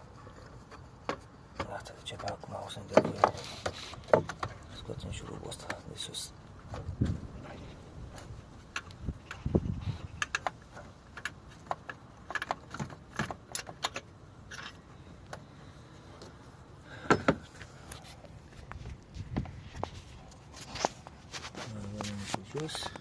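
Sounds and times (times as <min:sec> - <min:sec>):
metal tools clinking on metal: 0:13.6 - 0:14.8.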